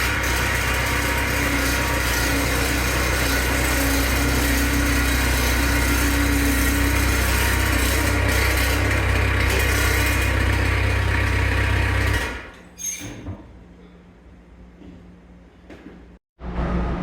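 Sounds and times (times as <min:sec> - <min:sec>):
skid steer engine idling: 0:00.0 - 0:12.4.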